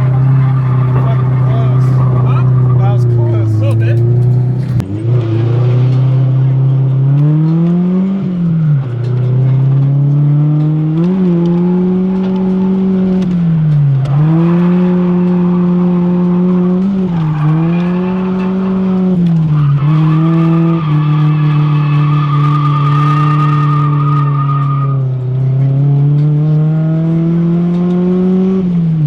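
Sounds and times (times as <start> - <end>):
tyre squeal: 0.0 - 4.8, 19.6 - 25.0
car engine at high revs: 0.0 - 29.0.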